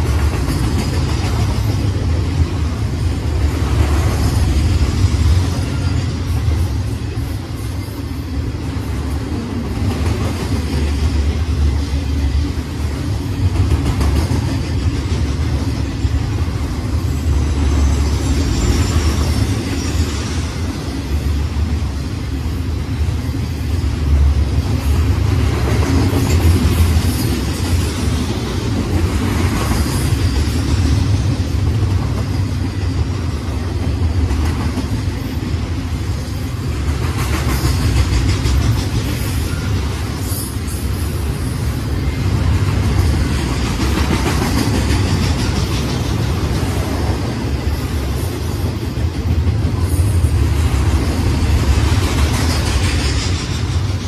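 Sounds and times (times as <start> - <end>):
freight cars clicking and rattling: 0.0 - 2.8, 42.0 - 54.0
train wheels rumbling on rails: 0.0 - 54.0.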